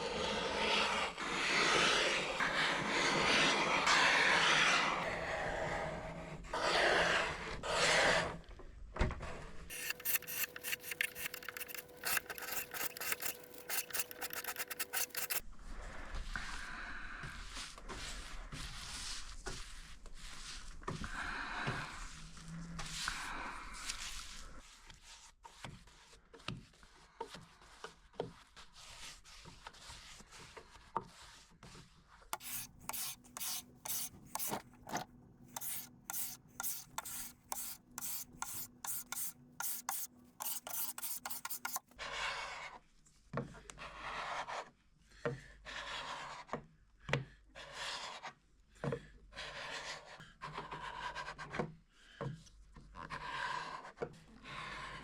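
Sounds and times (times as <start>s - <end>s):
hand tool scraping wood: 9.7s - 15.4s, 32.4s - 41.9s.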